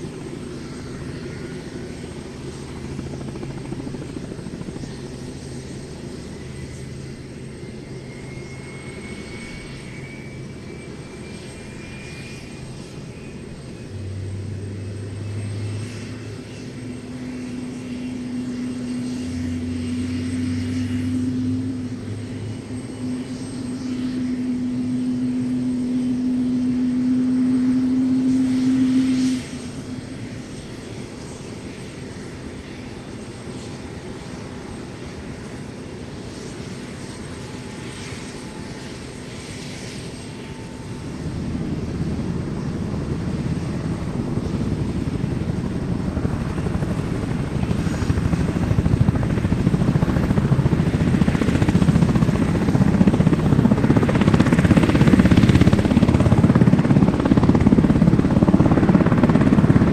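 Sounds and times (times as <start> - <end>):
steady hum: 0.0 - 31.4
helicopter rotor chop and turbine: 0.0 - 59.9.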